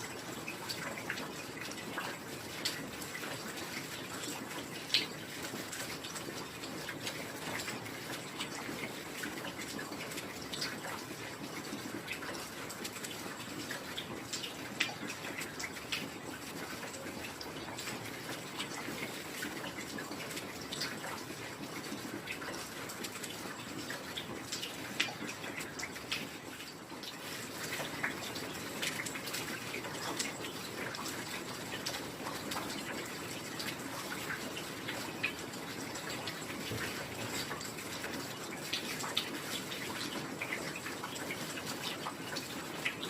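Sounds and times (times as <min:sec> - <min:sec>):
raindrops ticking: 0:00.0 - 0:43.0
steady rain falling: 0:00.0 - 0:43.0.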